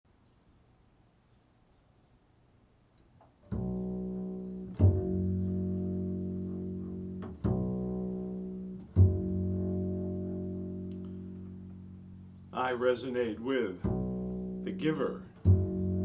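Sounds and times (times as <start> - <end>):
low sustained instrumental notes: 3.6 - 16.0.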